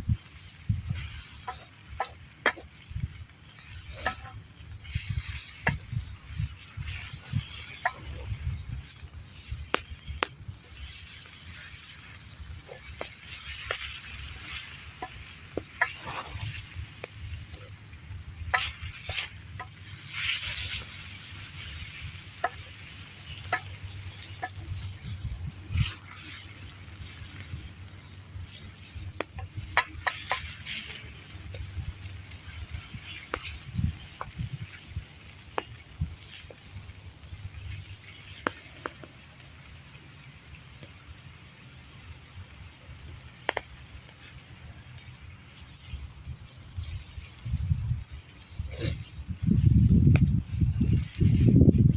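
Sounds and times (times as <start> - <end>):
campfire crackling: 0.0 - 51.9
meat sizzling in a wok: 0.0 - 51.9
utensil scraping pan: 0.2 - 27.7.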